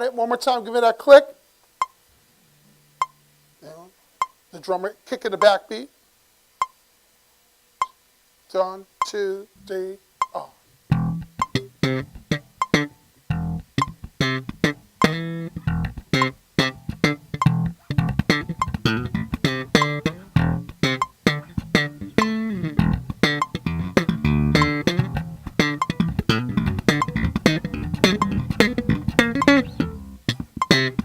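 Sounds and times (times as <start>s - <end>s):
metronome clicking: 10.2s - 31.0s
bass guitar groove: 10.9s - 31.0s.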